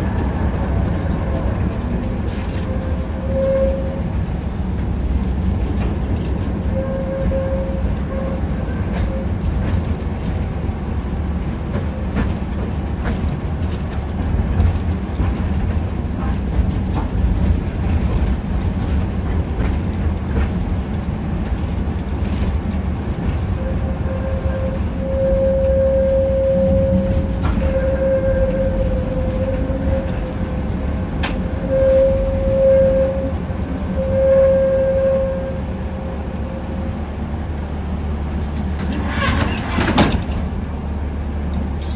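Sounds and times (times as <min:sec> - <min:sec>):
tram rumbling along track: 0:00.0 - 0:41.9
wheels clicking over rail joints: 0:38.3 - 0:40.6.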